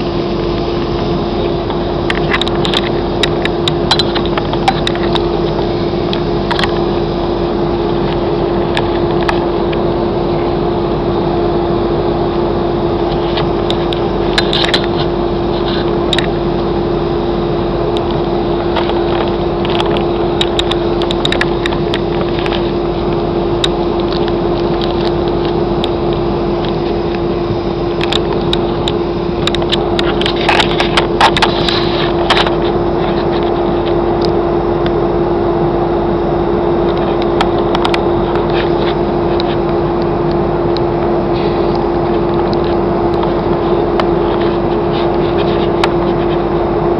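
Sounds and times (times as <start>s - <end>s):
airliner cabin engine roar: 0.0s - 46.9s
clicks and rattles: 0.7s - 6.9s, 13.0s - 16.6s, 17.9s - 35.0s, 36.9s - 46.4s.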